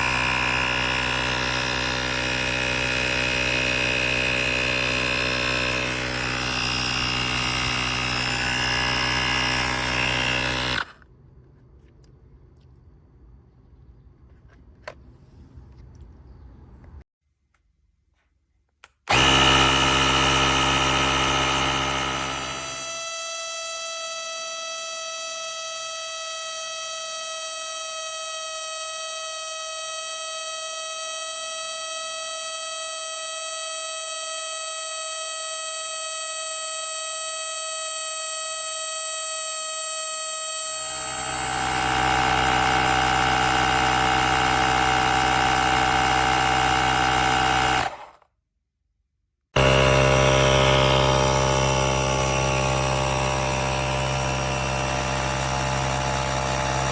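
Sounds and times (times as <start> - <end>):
air compressor buzzing whine: 19.1 - 48.1, 49.6 - 56.9.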